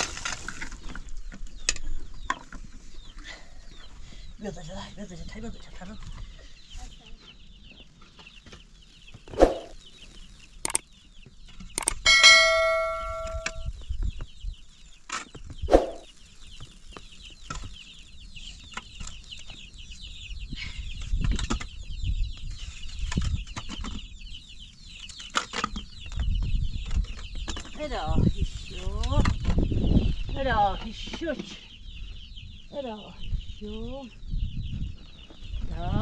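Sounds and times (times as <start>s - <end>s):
chicks peeping: 0.6s - 36.0s
chickens clucking: 5.3s - 10.8s
metal clanging and ringing: 12.1s - 13.7s.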